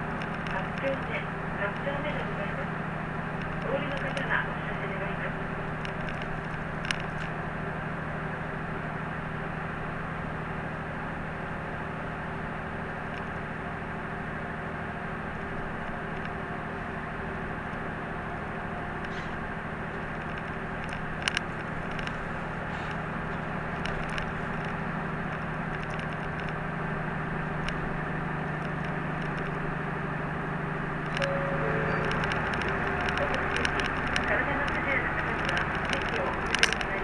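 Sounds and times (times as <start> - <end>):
bus engine hum: 0.0 - 37.0
road noise: 0.0 - 37.0
sharp clicks: 31.0 - 37.0.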